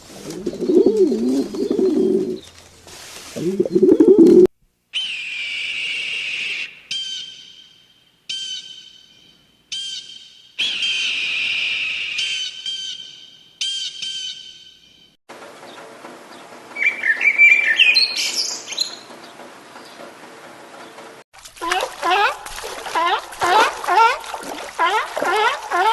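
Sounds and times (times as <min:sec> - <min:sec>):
clear pitched bird call: 0:00.4 - 0:02.6, 0:05.0 - 0:15.2, 0:16.8 - 0:19.1
bird chirping rapidly: 0:00.5 - 0:02.5, 0:09.7 - 0:15.1, 0:16.8 - 0:19.1.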